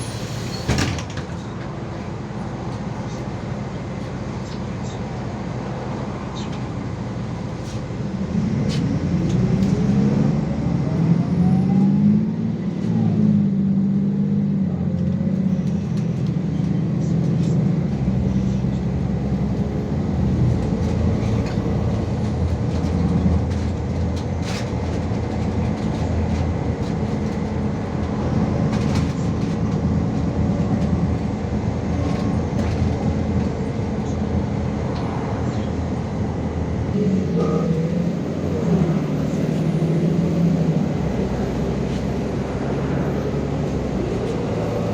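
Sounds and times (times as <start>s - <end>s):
bus engine whine: 0.0s - 44.9s
deep road rumble: 0.0s - 44.9s
rattles and knocks: 20.4s - 34.2s.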